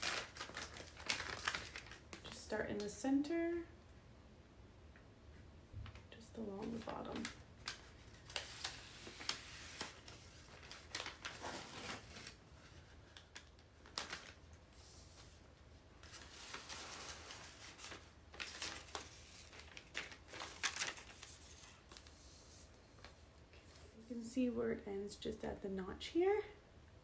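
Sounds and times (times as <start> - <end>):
vinyl wrap rustling and crinkling: 0.0 - 2.8, 5.8 - 24.0.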